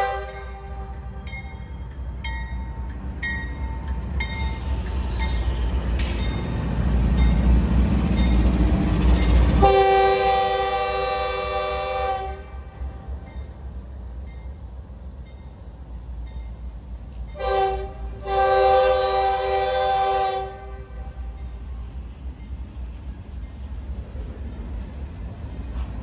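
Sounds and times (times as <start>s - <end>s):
train horn chord: 0.0s - 1.4s, 9.6s - 13.1s, 17.4s - 21.2s
locomotive bell ringing: 0.0s - 4.6s
train wheel noise: 0.0s - 26.0s.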